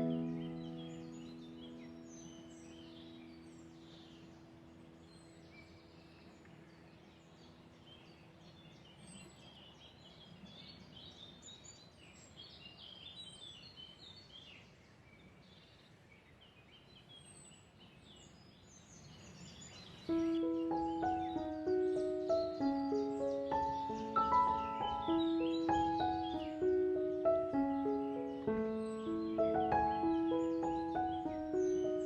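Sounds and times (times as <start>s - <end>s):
held music chord: 0.0s - 3.6s, 20.2s - 32.0s
songbirds chirping and trilling: 0.0s - 32.0s.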